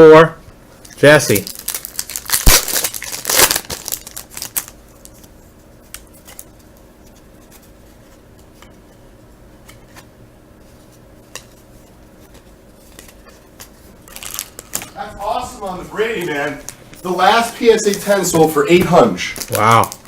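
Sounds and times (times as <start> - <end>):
foil wrapper tearing and crinkling: 0.9 - 6.7, 12.8 - 20.0.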